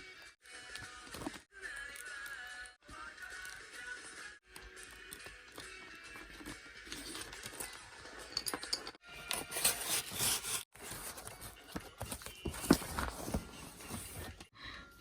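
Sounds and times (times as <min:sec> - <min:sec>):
paper rustling and tearing: 0:09.3 - 0:14.4.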